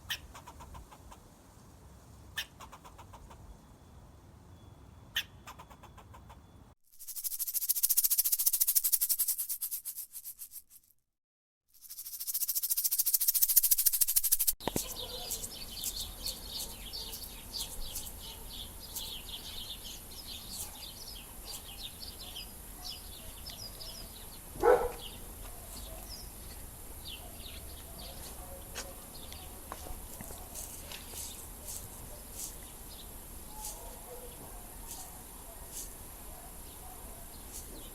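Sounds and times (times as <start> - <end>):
small birds chirping: 0.0 - 1.3, 2.3 - 3.7, 5.1 - 6.6, 11.8 - 37.9.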